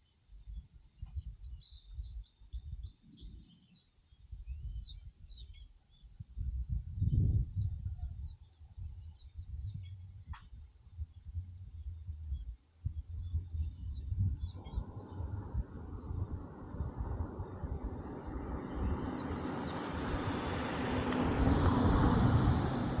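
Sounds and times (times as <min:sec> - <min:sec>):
insect drone: 0:00.0 - 0:23.0
wind rumble on microphone: 0:00.4 - 0:23.0
small bird chirps: 0:00.5 - 0:06.2, 0:07.0 - 0:10.4, 0:12.2 - 0:15.7
broad rushing noise: 0:14.3 - 0:23.0.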